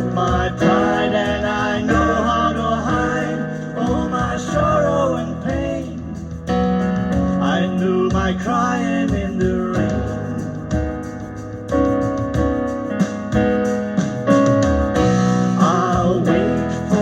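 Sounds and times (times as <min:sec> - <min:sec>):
keyboard playing pop ballad: 0:00.0 - 0:17.0.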